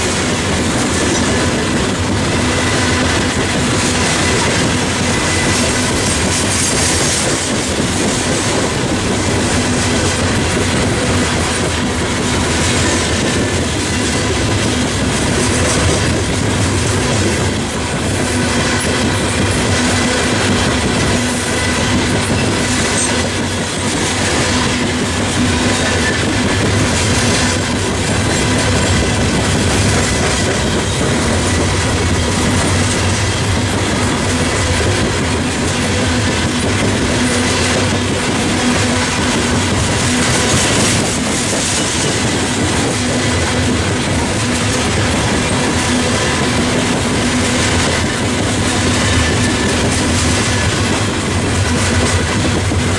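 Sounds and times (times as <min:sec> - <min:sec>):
train wheels rumbling on rail: 0:00.0 - 0:52.9.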